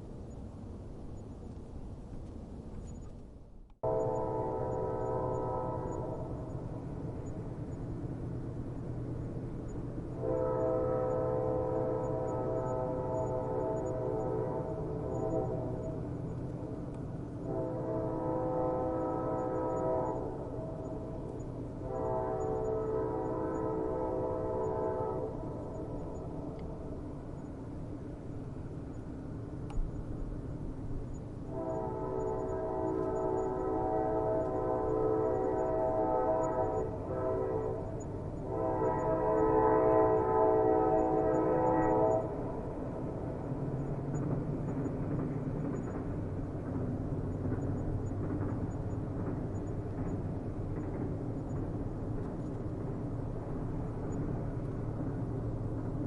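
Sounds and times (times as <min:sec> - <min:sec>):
low rail rumble: 0:00.0 - 0:56.0
train horn blast: 0:03.8 - 0:06.5, 0:10.2 - 0:16.0, 0:17.4 - 0:21.2, 0:21.8 - 0:26.6, 0:31.5 - 0:43.2.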